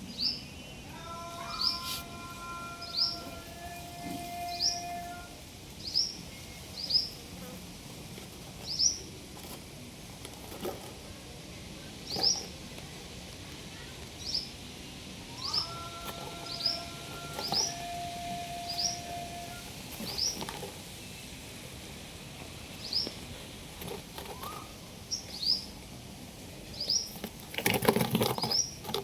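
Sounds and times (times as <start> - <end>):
steady hum: 14.4 - 23.8.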